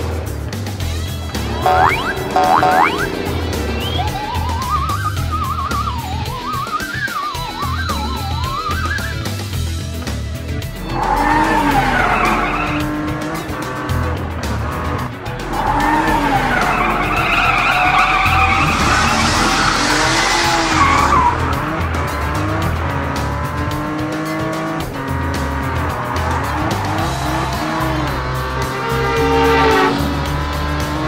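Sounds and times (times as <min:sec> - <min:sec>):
background music with steady beat: 0:00.1 - 0:31.0
cartoon race car engine revving: 0:01.3 - 0:09.3, 0:10.6 - 0:31.0
tyre screech: 0:10.8 - 0:14.0, 0:14.7 - 0:23.1, 0:25.8 - 0:31.0.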